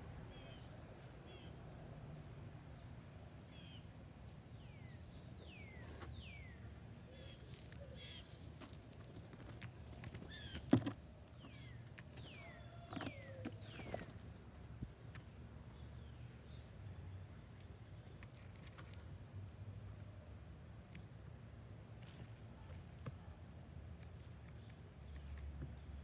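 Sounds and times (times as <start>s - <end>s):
birds calling: 4.7s - 16.7s.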